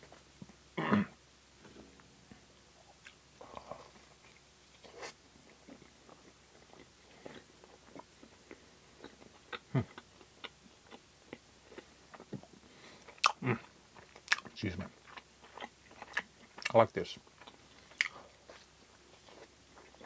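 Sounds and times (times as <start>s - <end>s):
person chewing pastry: 2.8s - 20.0s.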